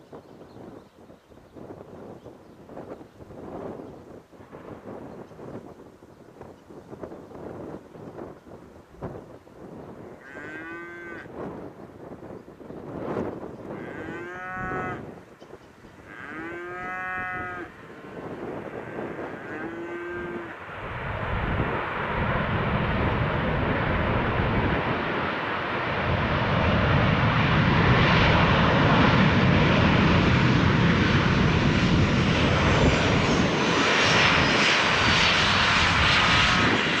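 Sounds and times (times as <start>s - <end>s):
jet airliner engines: 0.0s - 10.2s, 11.2s - 16.4s, 17.1s - 37.0s
cattle mooing: 10.1s - 11.3s, 13.8s - 15.1s, 16.0s - 17.8s, 18.6s - 20.5s.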